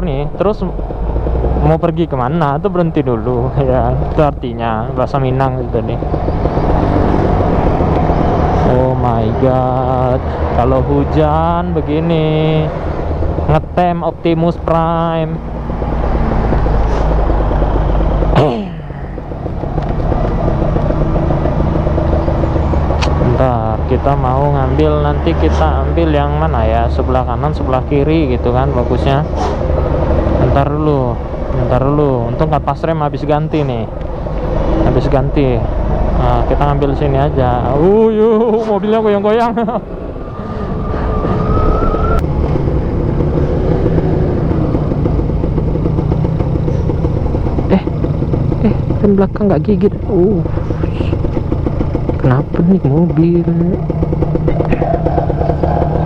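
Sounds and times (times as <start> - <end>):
motorcycle engine running: 0.0 - 56.0
steady high tone: 34.8 - 43.0.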